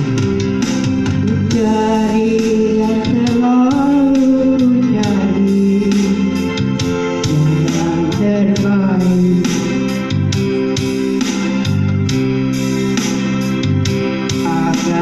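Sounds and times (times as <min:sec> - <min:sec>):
organ-like keyboard: 0:00.0 - 0:15.0
elderly woman singing: 0:01.2 - 0:06.2.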